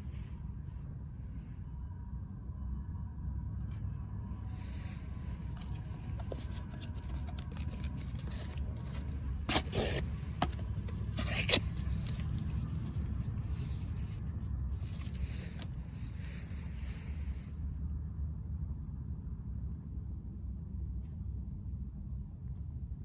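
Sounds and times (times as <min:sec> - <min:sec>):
steady low rumble: 0:00.0 - 0:23.0
short scrapes: 0:04.7 - 0:16.5.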